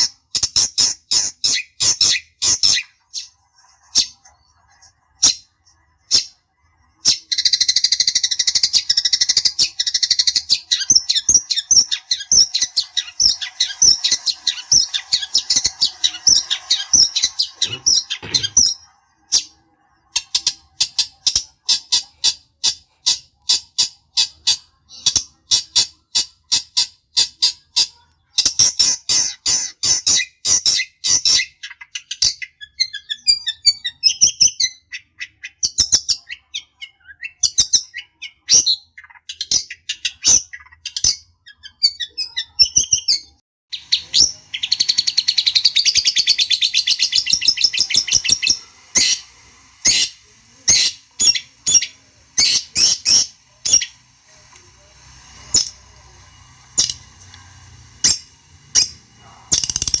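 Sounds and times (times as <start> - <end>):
shrike harsh chattering calls: 57.9 - 60.0.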